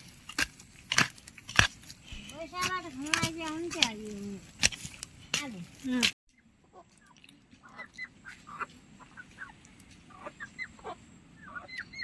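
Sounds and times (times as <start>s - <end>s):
birds chirping: 5.0s - 12.0s.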